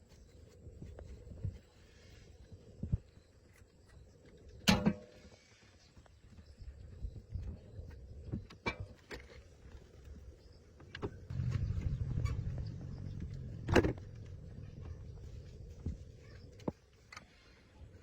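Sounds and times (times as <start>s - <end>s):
motor humming: 11.3s - 15.2s.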